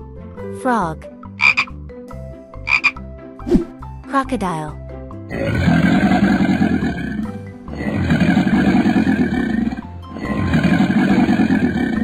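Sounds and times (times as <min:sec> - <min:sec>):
background music: 0:00.0 - 0:12.0
long rough growls: 0:05.3 - 0:12.0.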